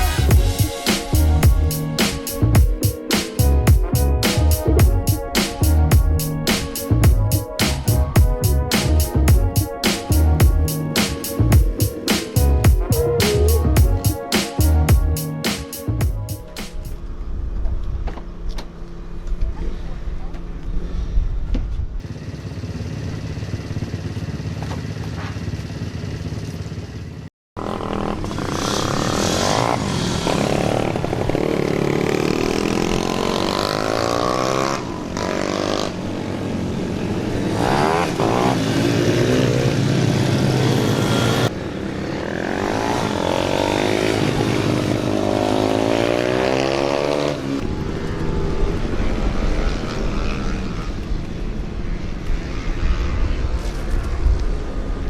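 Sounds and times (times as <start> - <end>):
motorcycles revving and passing: 22.0 - 55.0.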